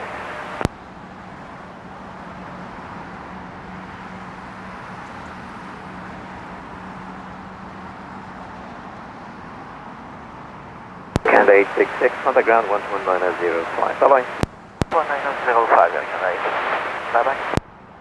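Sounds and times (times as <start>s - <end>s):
distant jet engines: 0.0s - 0.7s, 11.2s - 17.6s
low constant hum: 0.0s - 0.7s, 11.2s - 17.6s
traffic rumble: 11.2s - 17.6s.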